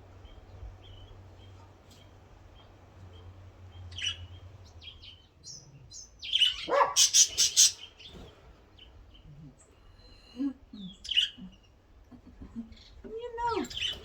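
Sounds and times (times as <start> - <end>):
birds chirping: 0.0 - 14.0
harsh bird squawk: 6.3 - 7.9.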